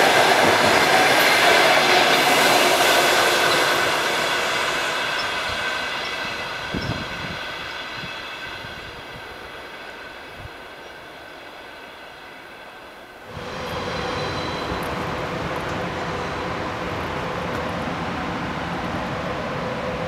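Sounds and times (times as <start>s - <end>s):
train passing: 0.0s - 20.0s
loud rushing noise: 13.3s - 17.6s.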